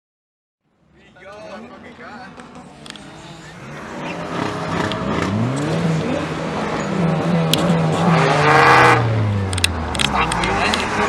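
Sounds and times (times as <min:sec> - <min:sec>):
car engine revving hard: 0:03.1 - 0:11.0.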